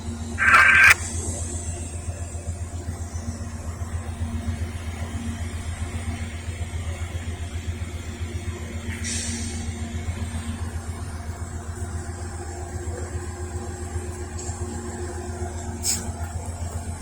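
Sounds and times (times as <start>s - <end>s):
sharp click: 0.4s - 1.0s.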